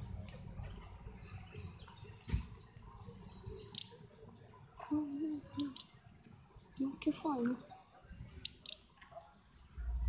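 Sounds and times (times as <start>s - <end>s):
small birds chirping: 0.0s - 9.8s
low rumble: 9.8s - 10.0s.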